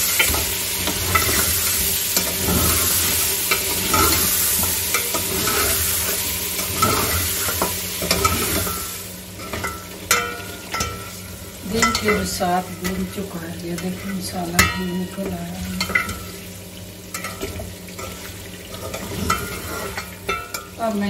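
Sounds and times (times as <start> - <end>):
metal spatula scraping pot: 0.0 - 16.3, 17.1 - 20.8
meat sizzling in hot oil: 0.0 - 21.0.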